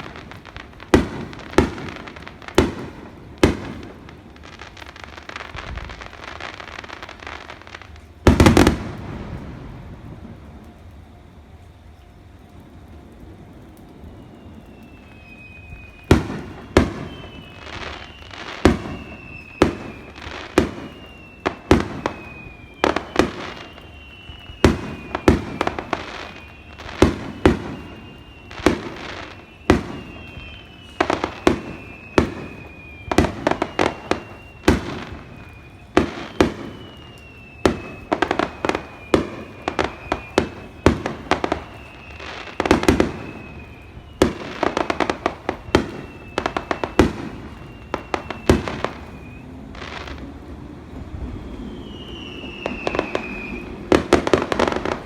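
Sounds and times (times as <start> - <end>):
rapid crackling fireworks: 0.0 - 55.0
high descending whistle: 14.0 - 55.0
firework shells bursting: 14.8 - 50.4, 51.4 - 55.0.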